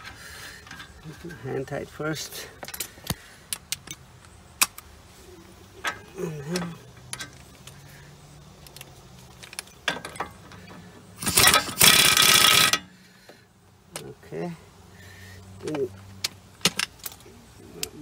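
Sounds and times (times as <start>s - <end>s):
power wrench running: 11.2s - 13.0s.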